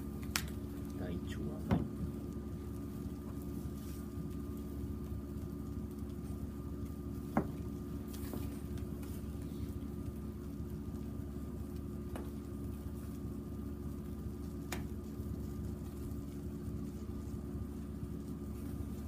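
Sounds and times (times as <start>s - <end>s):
fire crackle: 0.0s - 19.0s
steady hum: 0.0s - 19.0s
wood fire burning: 0.0s - 19.0s.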